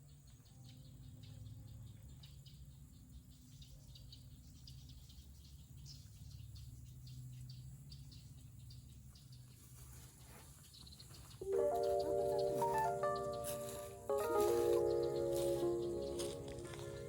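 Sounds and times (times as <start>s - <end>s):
faint high chirps: 11.4s - 17.0s
music with sustained notes: 11.4s - 17.0s.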